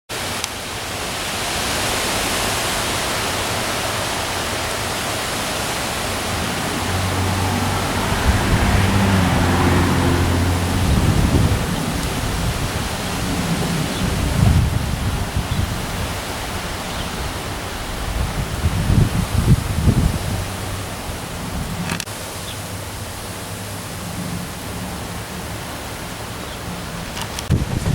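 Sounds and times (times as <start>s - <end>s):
heavy rain: 0.1s - 27.9s
wind gusts buffeting microphone: 3.9s - 22.0s, 26.7s - 27.9s.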